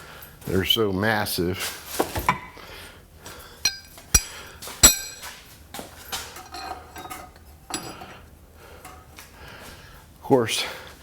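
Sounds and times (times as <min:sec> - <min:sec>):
steel hardware clinking: 0:03.6 - 0:05.4, 0:06.1 - 0:08.2
ringing metal strikes: 0:03.7 - 0:05.3.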